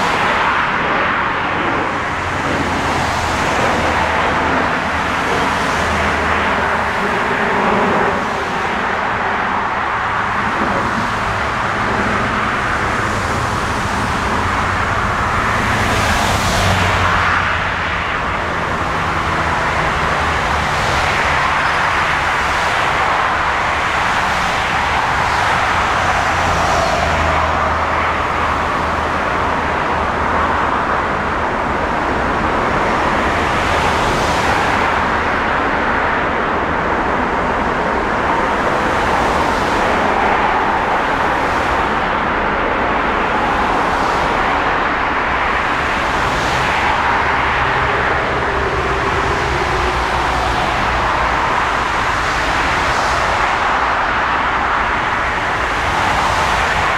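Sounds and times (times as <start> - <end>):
jet engine rushing: 0.0 - 30.4.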